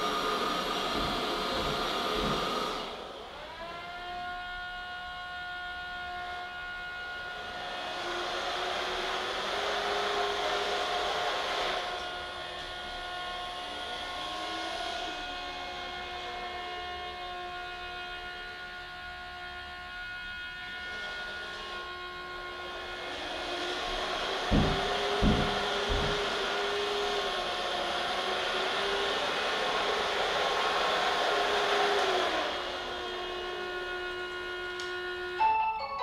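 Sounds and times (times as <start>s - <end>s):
robot vacuum motor whine: 7.4s - 17.4s, 20.7s - 35.4s.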